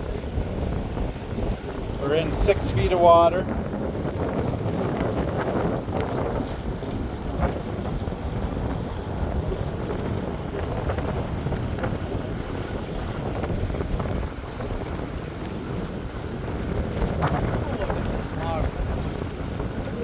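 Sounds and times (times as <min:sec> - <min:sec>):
boat motor running: 0:00.0 - 0:20.0
wind on microphone: 0:00.0 - 0:20.0.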